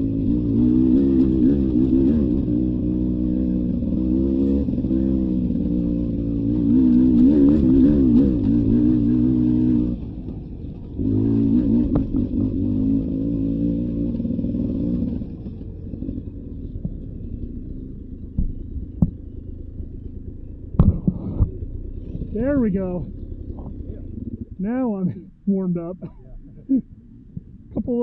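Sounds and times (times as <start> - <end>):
dirt bike engine revving: 0.0 - 27.7
sharp knocks: 18.3 - 19.2, 20.7 - 21.6.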